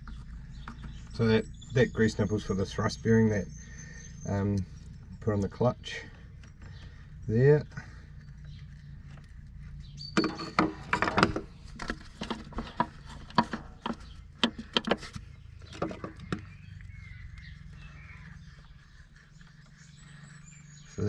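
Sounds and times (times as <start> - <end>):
steady low hum: 0.0 - 21.0
grease gun clicks and knocks: 10.1 - 17.5.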